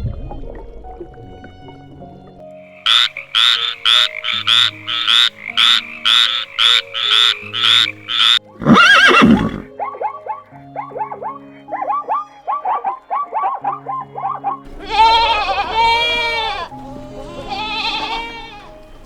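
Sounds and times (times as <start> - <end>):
background music: 0.0 - 19.0
animal calls: 2.8 - 9.7, 11.8 - 19.0.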